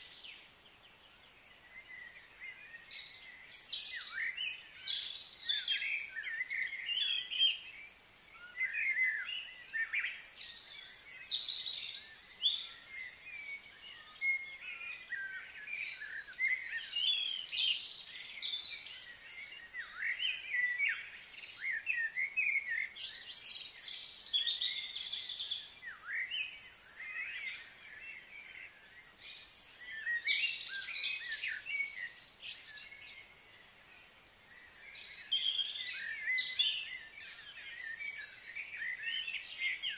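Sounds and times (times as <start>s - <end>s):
birds singing and chirping: 0.0s - 39.9s.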